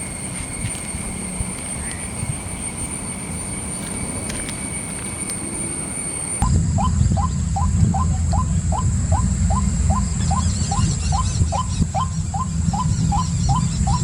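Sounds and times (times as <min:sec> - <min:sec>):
steady low rumble: 0:06.3 - 0:14.0
high bird chirps: 0:06.7 - 0:14.0.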